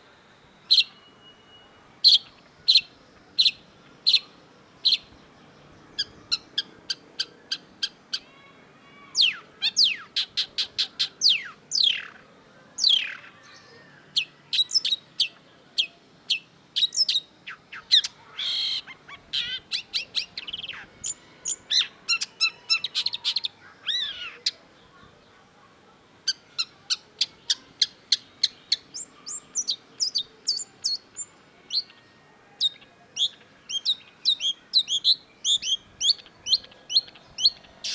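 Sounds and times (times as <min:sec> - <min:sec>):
bird singing: 0:00.0 - 0:37.9.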